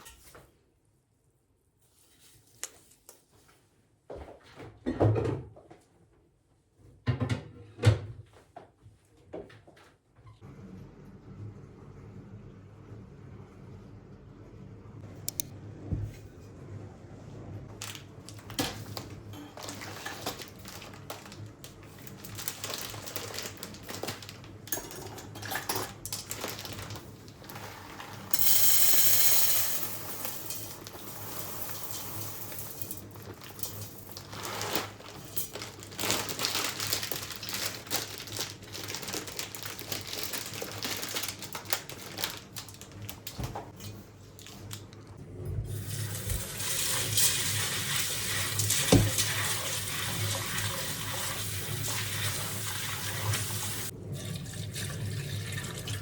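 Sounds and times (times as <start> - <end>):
dishes and utensils clinking: 24.7 - 26.1
tap running: 48.6 - 49.7.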